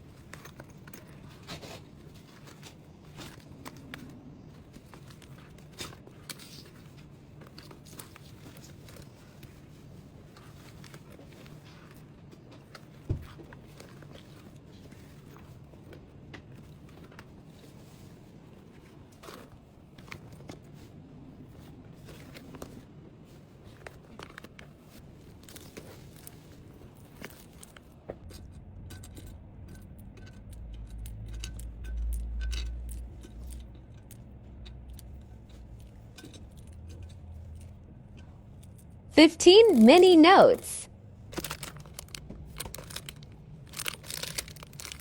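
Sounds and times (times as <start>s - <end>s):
packaging being handled: 41.4s - 45.0s.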